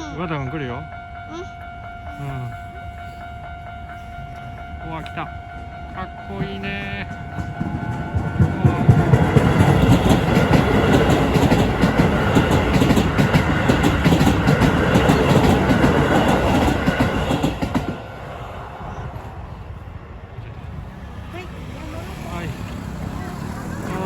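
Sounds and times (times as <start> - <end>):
train wheels clacking over rail joints: 6.3 - 18.2.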